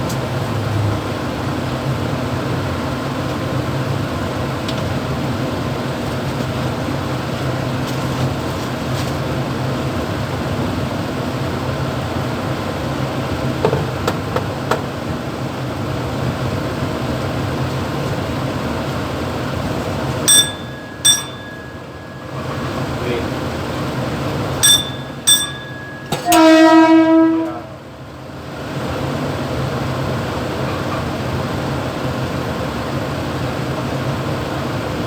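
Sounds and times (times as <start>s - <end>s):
train running noise: 0.0s - 35.0s
bell-like dings: 20.3s - 23.0s, 24.6s - 26.4s.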